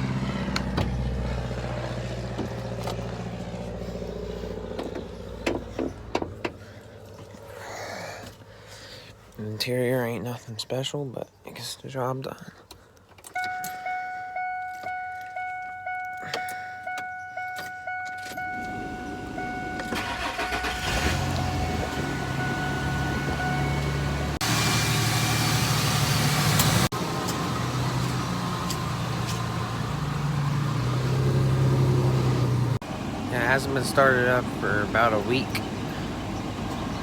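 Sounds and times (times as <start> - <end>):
dashboard warning chime: 13.4 - 24.4
car engine idling: 13.4 - 37.0.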